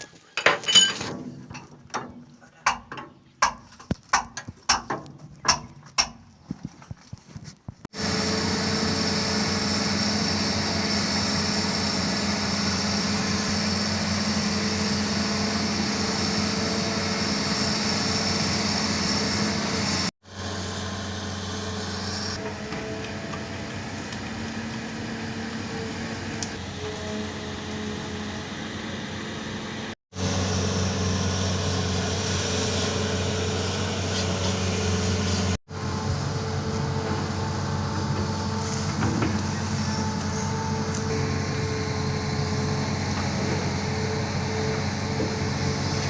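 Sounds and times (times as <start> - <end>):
diesel engine running: 7.9 - 46.0
high whine: 28.0 - 46.0.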